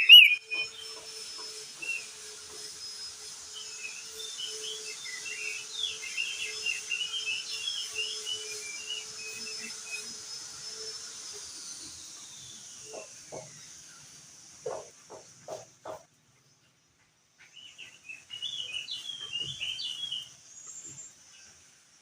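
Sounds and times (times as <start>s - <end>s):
short low bird calls: 0.0s - 0.7s
bird singing high chirps: 0.0s - 1.0s, 3.6s - 10.1s, 17.4s - 21.6s.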